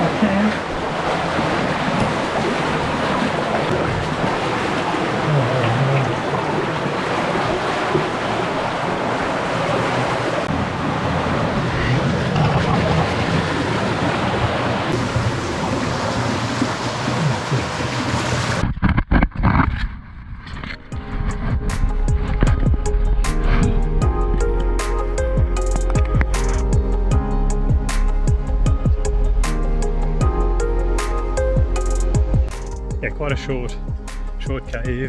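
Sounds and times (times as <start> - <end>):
water rushing through cave: 0.0 - 18.6.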